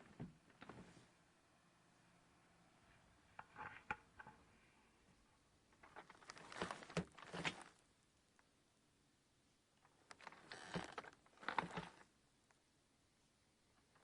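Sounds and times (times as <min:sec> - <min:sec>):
bed frame squeaking and creaking: 0:05.8 - 0:07.8, 0:10.0 - 0:12.0.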